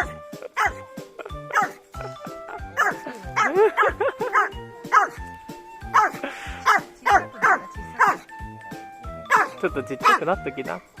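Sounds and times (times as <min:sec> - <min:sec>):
dog barking: 0:00.0 - 0:00.8, 0:01.5 - 0:01.8, 0:02.8 - 0:03.6, 0:04.2 - 0:05.2, 0:05.9 - 0:08.3, 0:09.3 - 0:10.3
background music with steady beat: 0:00.0 - 0:11.0.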